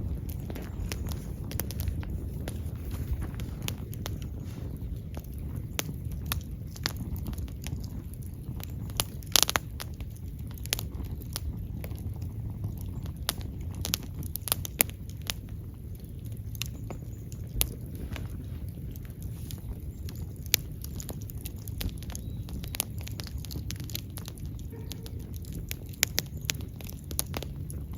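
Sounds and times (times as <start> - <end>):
fire crackling and popping: 0.0 - 27.9
low steady fire rumble: 0.0 - 27.9.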